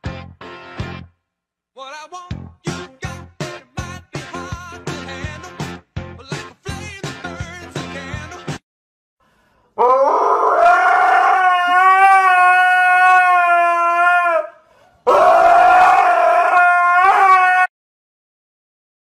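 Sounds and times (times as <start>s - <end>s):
dog howling: 9.8s - 17.7s.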